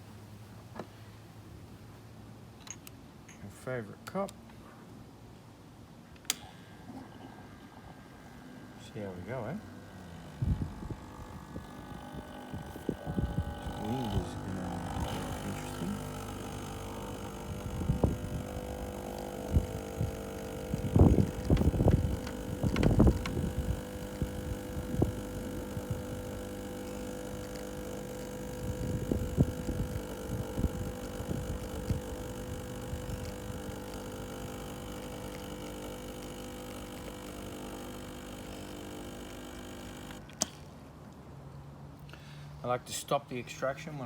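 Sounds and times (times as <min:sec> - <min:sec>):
espresso machine pump humming: 0:07.5 - 0:40.7.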